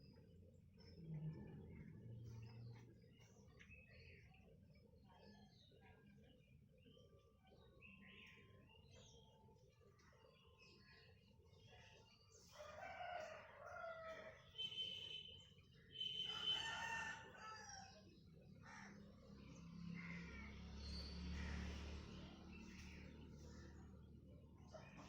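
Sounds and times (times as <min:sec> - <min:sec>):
rooster crowing: 0:16.3 - 0:17.8.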